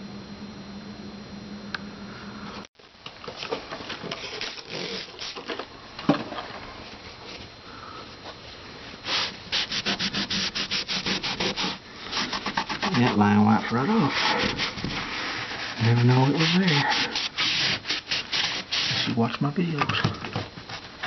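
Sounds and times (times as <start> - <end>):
low hum: 0.0 - 2.7
hand scrubbing a wall: 9.0 - 19.4.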